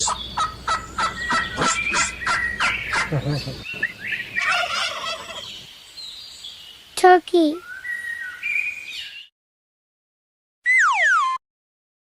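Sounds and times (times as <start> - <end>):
turkey gobbling: 0.0 - 5.6.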